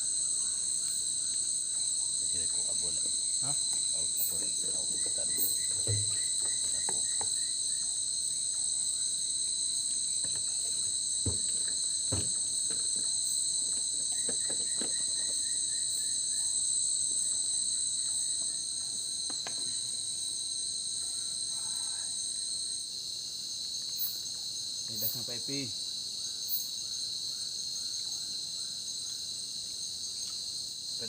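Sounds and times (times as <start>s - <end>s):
insects trilling: 0.0s - 31.0s
soft knocks: 5.5s - 7.4s, 10.2s - 15.3s.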